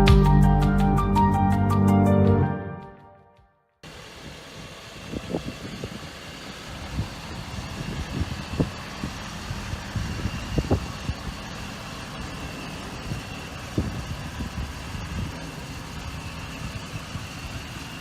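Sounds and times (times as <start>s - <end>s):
diesel engine idling: 3.8s - 18.0s.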